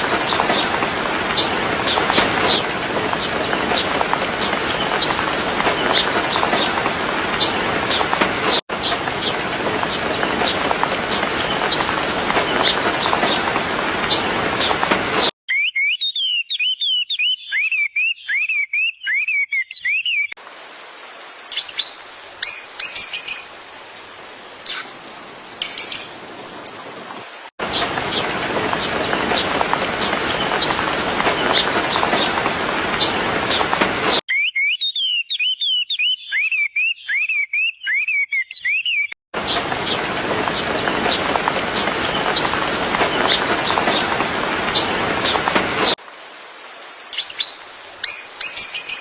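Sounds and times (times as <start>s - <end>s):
bird chirping rapidly: 15.5s - 20.3s, 34.3s - 40.0s.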